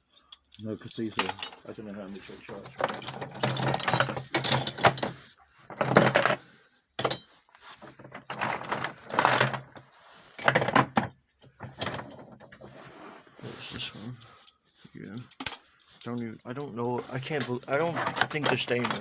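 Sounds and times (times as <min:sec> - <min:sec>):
metal hardware clinking: 0:00.0 - 0:07.4, 0:14.0 - 0:19.0.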